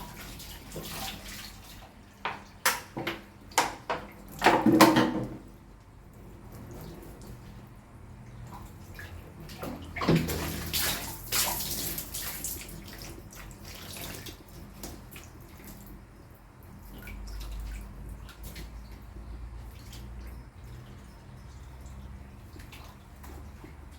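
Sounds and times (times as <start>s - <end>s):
water splashing and running: 0.0s - 2.8s, 8.4s - 20.4s
water dripping: 5.7s - 23.9s.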